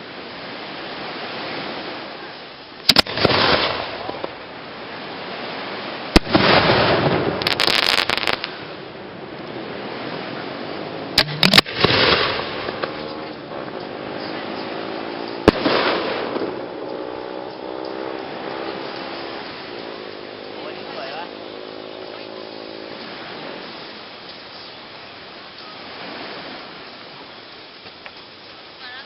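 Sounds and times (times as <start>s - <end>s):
crackling hiss: 0.0s - 29.0s
fireworks banging: 2.8s - 9.0s, 9.6s - 23.9s.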